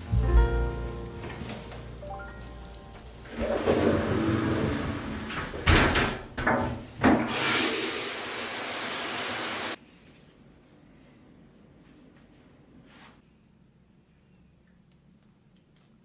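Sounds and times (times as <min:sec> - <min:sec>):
steady hiss: 0:07.4 - 0:09.8.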